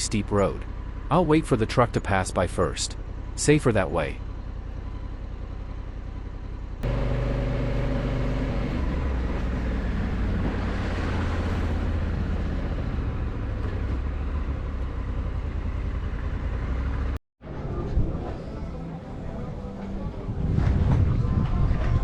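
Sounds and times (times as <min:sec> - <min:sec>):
wind and road noise: 0:00.0 - 0:22.0
motorcycle engine pulling under load: 0:04.3 - 0:17.2.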